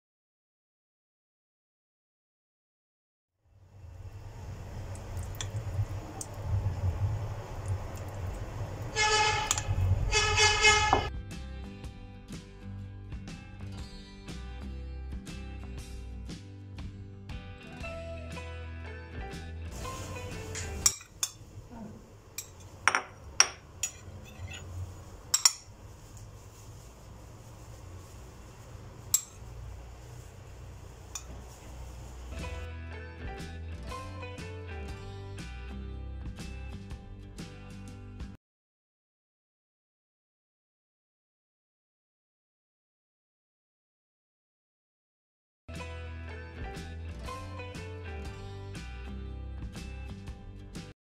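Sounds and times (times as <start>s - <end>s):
low vehicle rumble: 3.6s - 11.0s
vehicle horn: 8.9s - 11.1s
music: 8.9s - 23.0s, 30.1s - 38.4s, 45.7s - 51.0s.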